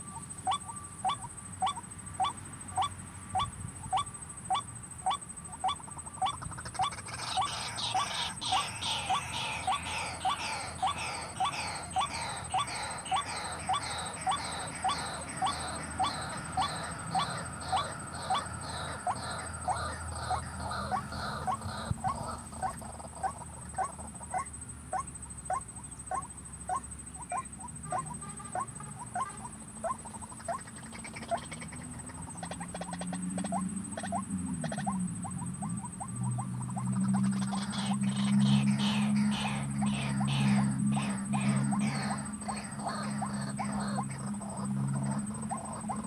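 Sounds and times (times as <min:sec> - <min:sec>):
waterhen calling: 0:05.1 - 0:24.5, 0:29.9 - 0:46.0
low drone: 0:07.7 - 0:22.6, 0:37.6 - 0:46.0
high-pitched whine: 0:07.8 - 0:22.6.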